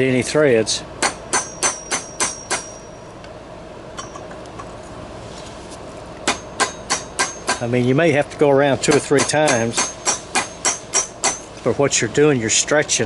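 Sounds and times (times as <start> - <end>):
hammer striking brass tube: 1.0 - 2.9, 6.3 - 7.7, 8.9 - 11.5.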